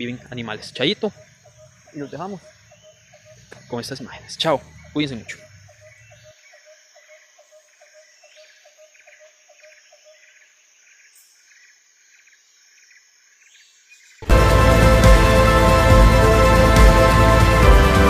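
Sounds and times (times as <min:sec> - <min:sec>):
faint chirping pulses: 0:00.0 - 0:13.3
music: 0:14.2 - 0:18.0.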